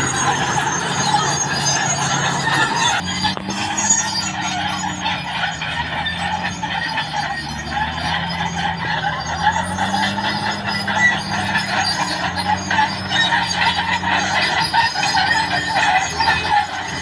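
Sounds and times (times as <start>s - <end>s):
steel tracks clanking: 0.0s - 5.2s
bulldozer diesel engine running: 0.0s - 17.0s.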